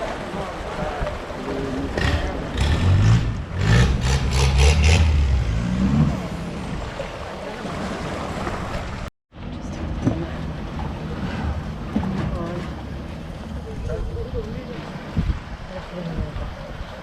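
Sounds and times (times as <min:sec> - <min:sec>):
boat engine revving: 0:00.0 - 0:16.9
water noise: 0:00.0 - 0:17.0
wind: 0:00.0 - 0:17.0.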